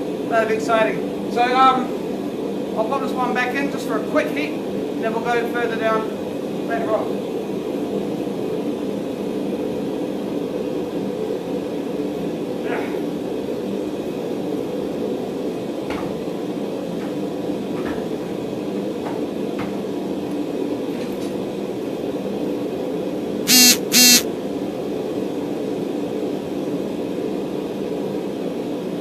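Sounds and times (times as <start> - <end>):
high-pitched beeps: 23.5 - 24.2.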